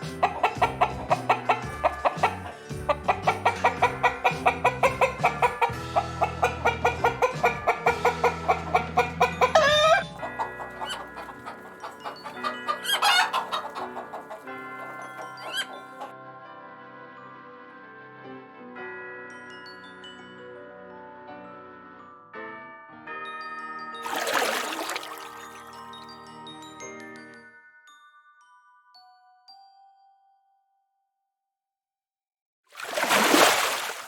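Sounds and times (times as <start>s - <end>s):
upbeat music with plucked beat: 0.0s - 13.9s
wavering chicken calls: 0.0s - 16.1s.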